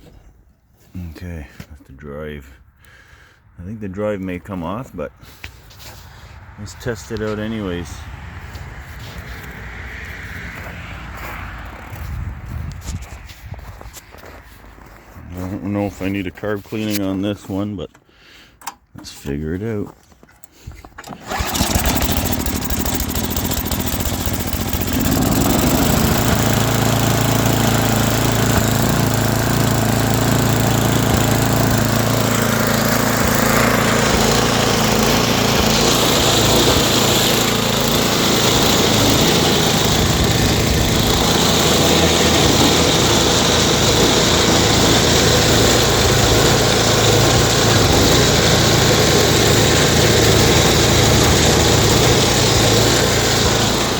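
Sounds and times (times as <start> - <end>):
small gas engine running: 5.2 - 13.2, 20.5 - 53.9.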